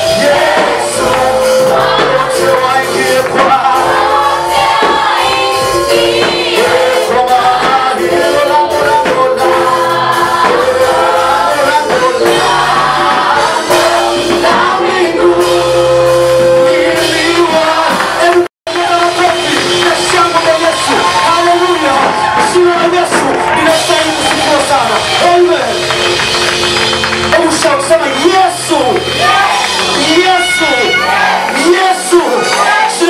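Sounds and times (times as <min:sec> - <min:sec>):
group singing praise song: 0:00.0 - 0:25.8, 0:28.2 - 0:33.0
instrumental backing music: 0:00.0 - 0:33.0.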